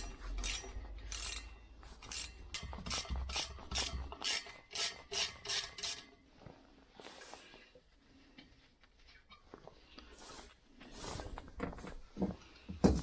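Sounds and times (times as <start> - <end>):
hand tool scraping metal: 0.0 - 6.2.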